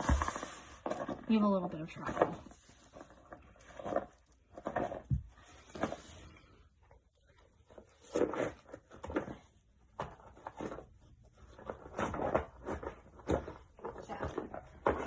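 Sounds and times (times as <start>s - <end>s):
paper rustling and scraping: 0.0s - 1.4s.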